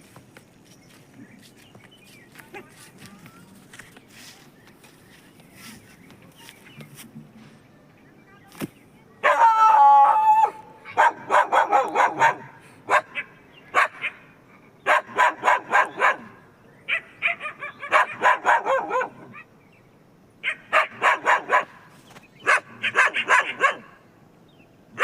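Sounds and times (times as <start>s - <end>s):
dog barking: 10.9s - 14.2s, 14.8s - 19.4s, 20.4s - 21.8s, 22.4s - 24.0s.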